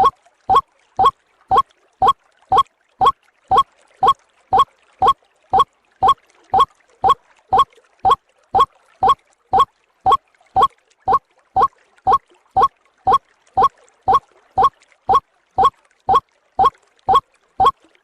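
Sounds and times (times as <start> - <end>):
waterhen calling: 0.0 - 2.6, 6.0 - 7.7, 8.6 - 14.7.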